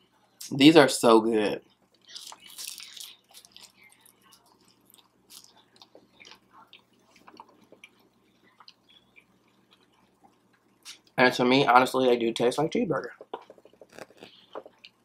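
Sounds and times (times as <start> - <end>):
chewing with small crunches: 1.6 - 11.2, 13.0 - 15.0.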